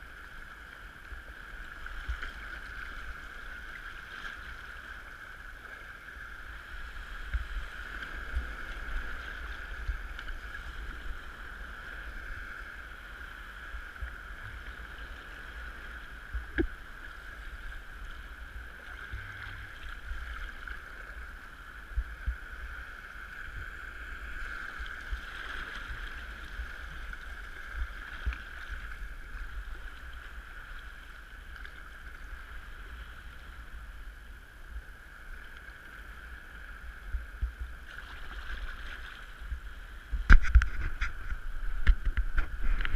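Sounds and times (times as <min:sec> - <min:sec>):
water sloshing around a kayak: 0:00.0 - 0:42.9
wind buffeting on microphone: 0:36.8 - 0:42.9.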